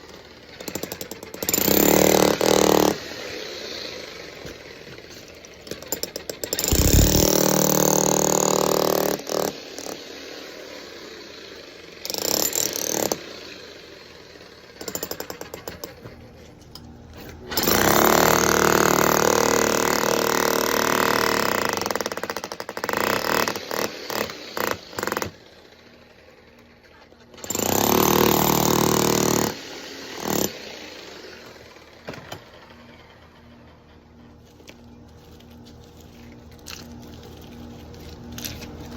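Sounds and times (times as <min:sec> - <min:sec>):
jackhammer breaking concrete: 0:00.0 - 0:11.4, 0:12.0 - 0:16.2, 0:17.5 - 0:25.6, 0:27.3 - 0:34.0.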